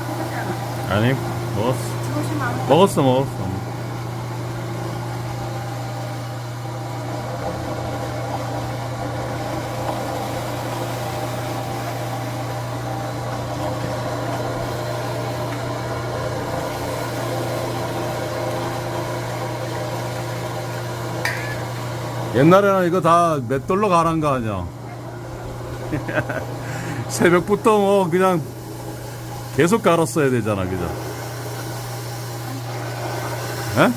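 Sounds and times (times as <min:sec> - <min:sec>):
electric grinder motor humming: 0:00.0 - 0:22.4.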